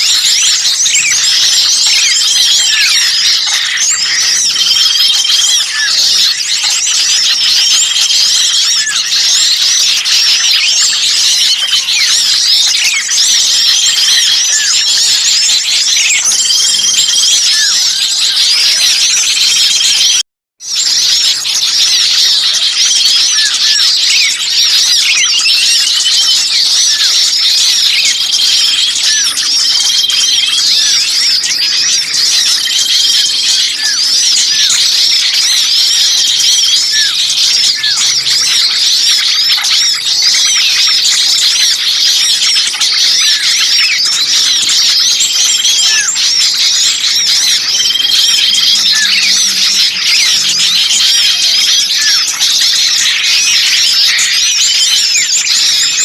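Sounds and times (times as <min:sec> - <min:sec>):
small birds chattering: 0:00.0 - 0:56.0.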